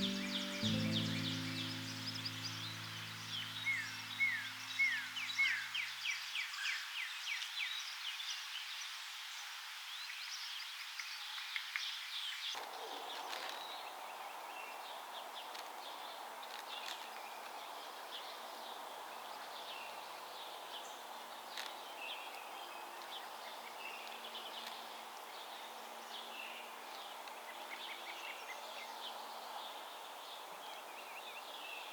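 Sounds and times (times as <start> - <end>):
small birds chirping: 0.0 - 5.6.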